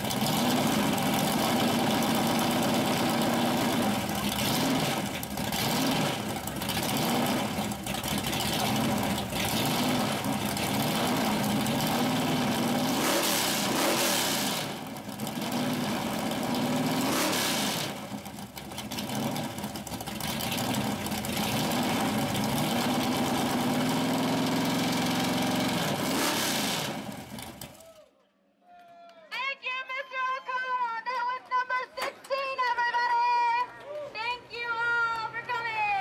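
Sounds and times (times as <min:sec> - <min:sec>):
engine revving: 0:00.0 - 0:27.7.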